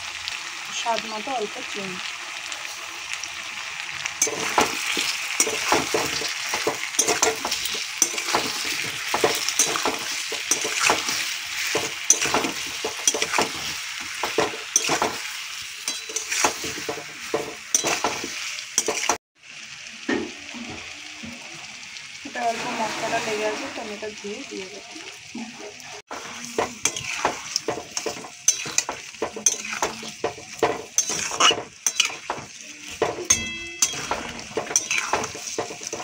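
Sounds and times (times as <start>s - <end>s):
vegetables sizzling in a pan: 0.0s - 36.0s
spatula scraping and knocking pan: 4.2s - 19.2s, 25.4s - 36.0s.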